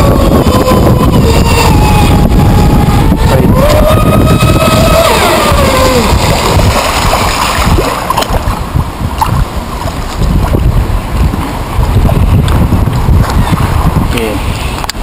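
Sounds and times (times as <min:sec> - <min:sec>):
model boat motor whining: 0:00.0 - 0:07.1
water splashing: 0:00.0 - 0:14.0
wind noise on microphone: 0:00.0 - 0:15.0.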